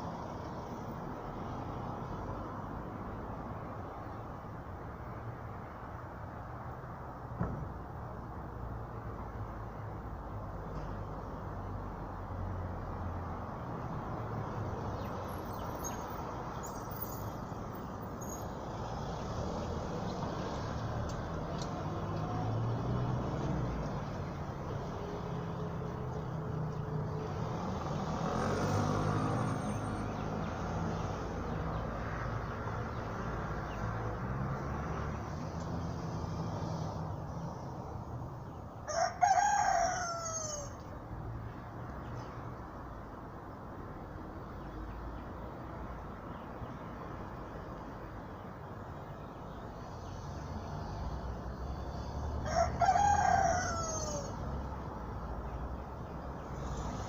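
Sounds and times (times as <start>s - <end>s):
rooster crowing: 38.8s - 40.8s, 52.4s - 54.4s.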